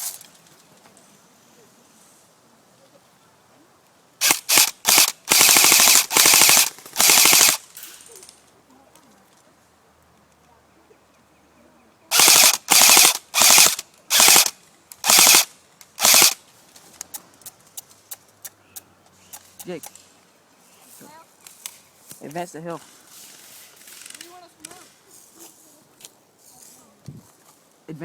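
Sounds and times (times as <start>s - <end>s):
airsoft rifle full-auto bursts: 4.2s - 7.6s, 12.1s - 16.4s
faint snaps: 16.7s - 20.1s.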